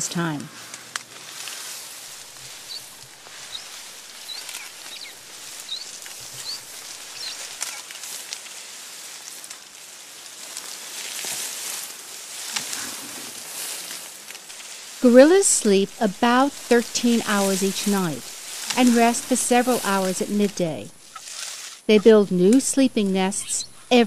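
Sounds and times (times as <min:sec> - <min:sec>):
forest background hiss: 0:00.0 - 0:24.0
small bird chirping: 0:02.1 - 0:07.8.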